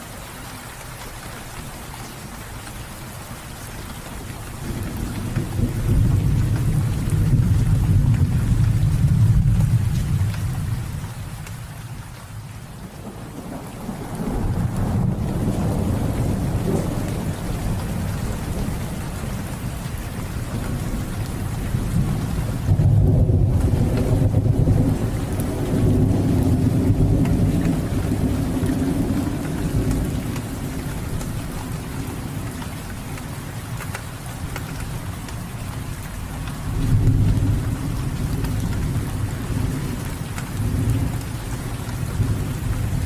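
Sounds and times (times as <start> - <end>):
steady rain: 0.0 - 43.0
low rolling thunder: 4.6 - 11.4, 12.8 - 32.6, 36.0 - 43.0.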